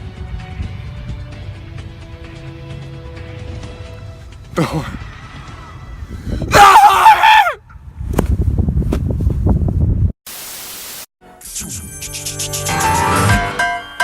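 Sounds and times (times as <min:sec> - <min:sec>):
music: 0:00.0 - 0:06.2, 0:11.2 - 0:14.0
static hiss: 0:10.3 - 0:11.1.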